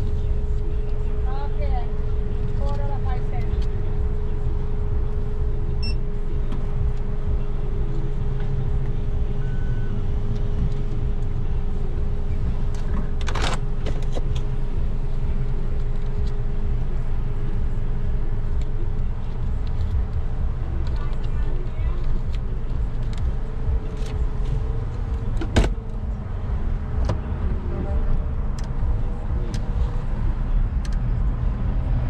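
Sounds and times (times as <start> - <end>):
car idling from inside: 0.0 - 30.9.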